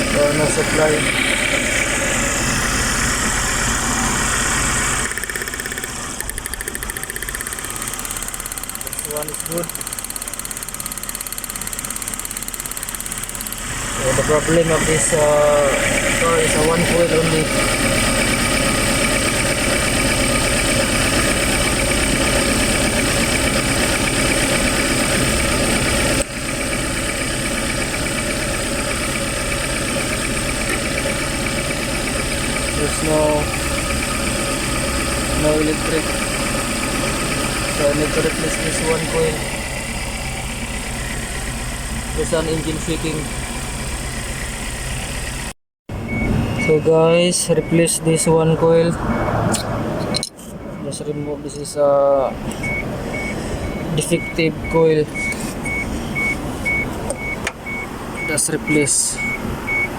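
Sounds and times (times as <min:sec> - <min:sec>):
misfiring engine idling: 0:00.0 - 0:45.5
fast even ticking: 0:04.8 - 0:13.7.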